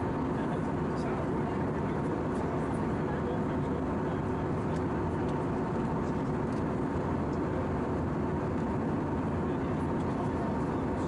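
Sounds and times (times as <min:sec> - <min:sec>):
airplane cabin roar: 0:00.0 - 0:11.0
faint steady hum: 0:00.0 - 0:11.0.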